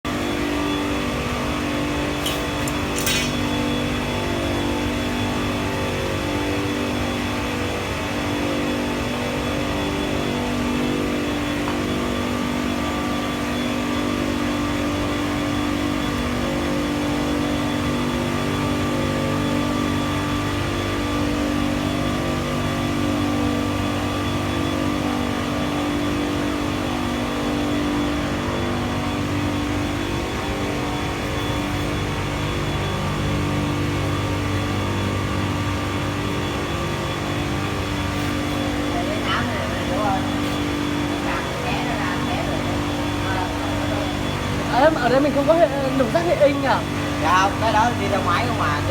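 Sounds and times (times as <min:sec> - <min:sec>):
chiller machine hum: 0:00.1 - 0:48.9.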